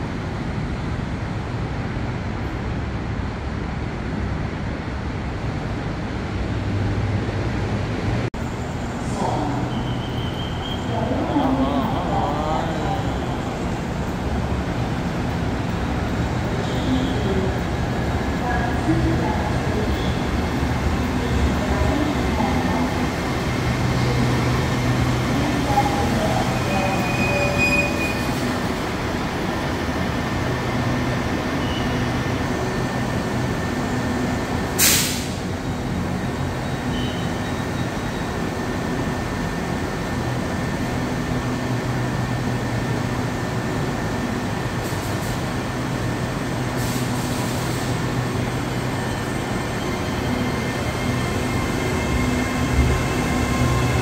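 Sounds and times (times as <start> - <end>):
train rumble: 0.0 - 54.0
loud hiss: 34.8 - 35.4.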